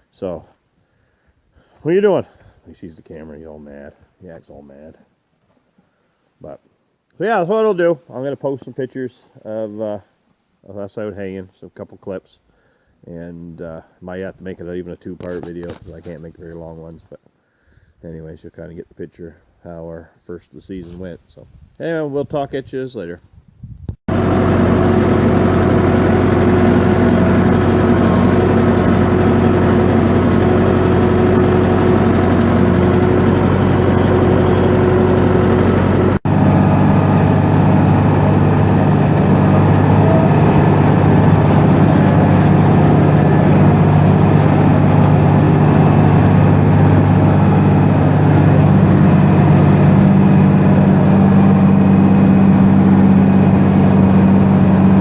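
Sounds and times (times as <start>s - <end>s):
engine running: 24.1s - 55.0s
tractor engine running: 24.1s - 55.0s.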